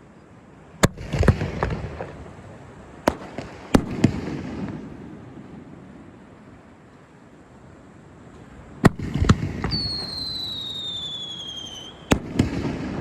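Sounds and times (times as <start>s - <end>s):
fireworks bangs: 3.0s - 5.0s, 8.8s - 13.0s
fireworks crackling: 8.8s - 13.0s.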